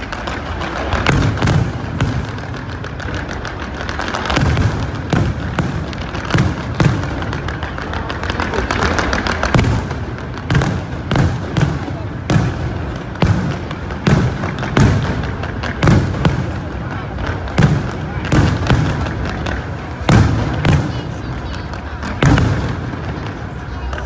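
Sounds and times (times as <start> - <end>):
fireworks booming: 0.0 - 24.0.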